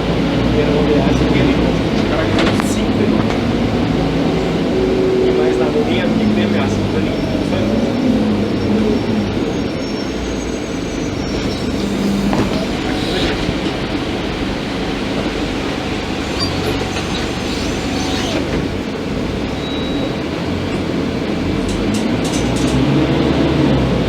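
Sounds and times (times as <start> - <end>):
bus engine running: 0.0 - 24.0
road and body noise: 0.0 - 24.0
sharp clicks and knocks: 11.4 - 14.0.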